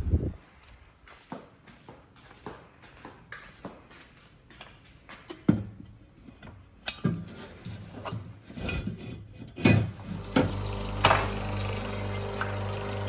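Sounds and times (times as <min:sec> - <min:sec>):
electric machine humming: 0:09.9 - 0:13.0.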